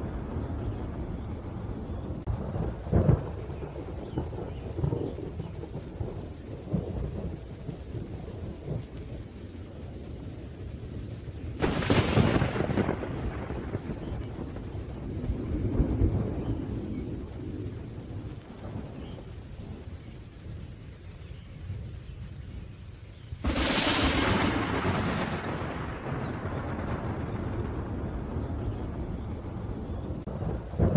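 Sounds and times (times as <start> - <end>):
low rolling thunder: 0.0 - 30.9
steady rain: 0.0 - 30.9
sharp thunderclap: 11.6 - 19.2, 23.4 - 30.9.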